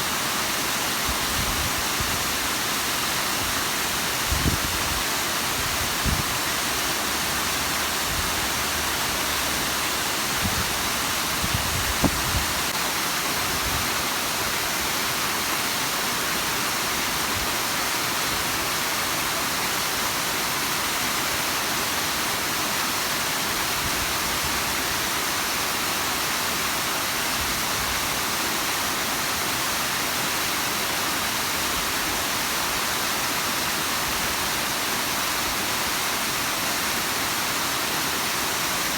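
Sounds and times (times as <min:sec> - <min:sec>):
waterfall rushing: 0:00.0 - 0:38.9
low thumps: 0:11.5 - 0:12.6.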